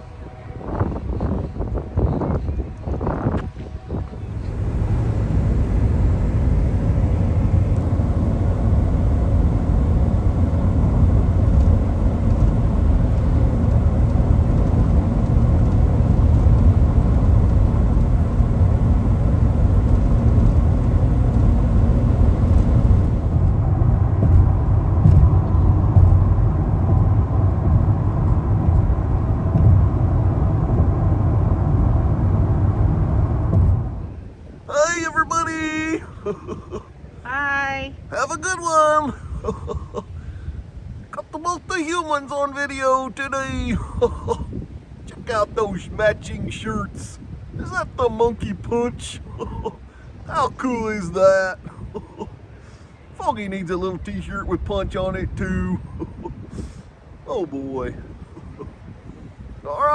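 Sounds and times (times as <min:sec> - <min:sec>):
car road rumble: 0:04.0 - 0:34.7.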